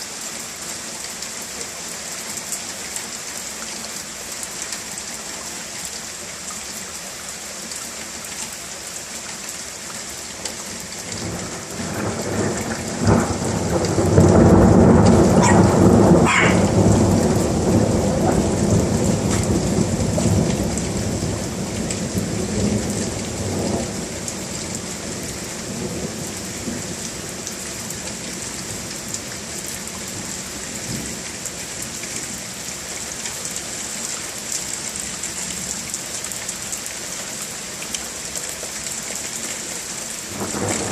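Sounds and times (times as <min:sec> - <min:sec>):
heavy rain: 0:00.0 - 0:40.9
thunder crack and rumble: 0:11.2 - 0:24.8.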